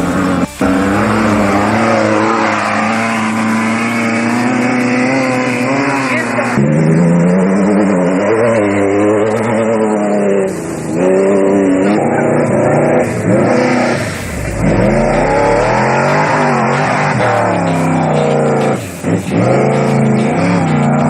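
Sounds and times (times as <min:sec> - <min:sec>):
race vehicle engine revving: 0:00.0 - 0:21.0.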